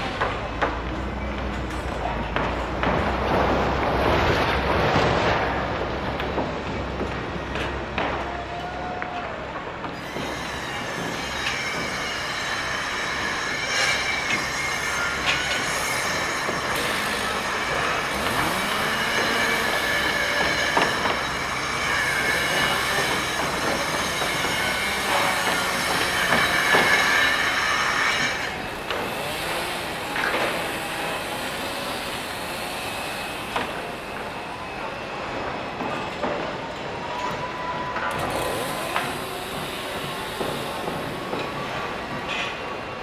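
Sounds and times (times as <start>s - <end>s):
high-pitched metallic squealing: 10.0s - 42.7s.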